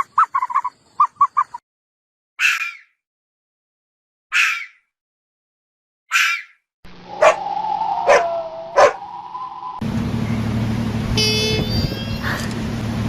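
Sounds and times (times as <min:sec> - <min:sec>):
steady low hum: 0:06.9 - 0:11.3
brief high-pitched call: 0:07.1 - 0:09.8
dog barking: 0:07.2 - 0:07.4, 0:08.0 - 0:09.0.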